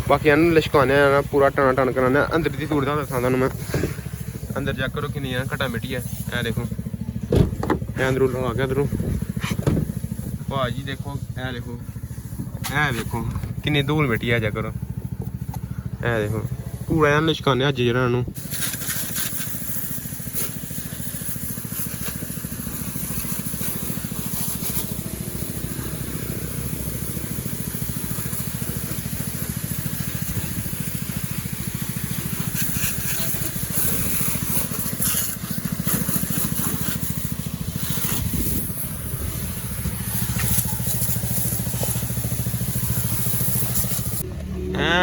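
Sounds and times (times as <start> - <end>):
motor pulsing: 0.0 - 17.5, 18.3 - 45.0
constant high hiss: 18.4 - 44.2.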